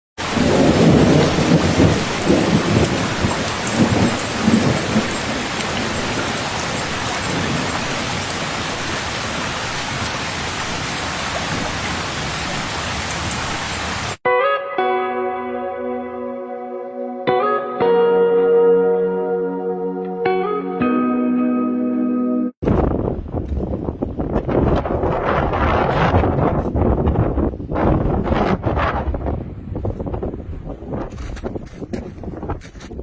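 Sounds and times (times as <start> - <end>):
thunder rumbling: 0.2 - 13.4, 22.6 - 31.3
heavy rain: 0.2 - 14.2.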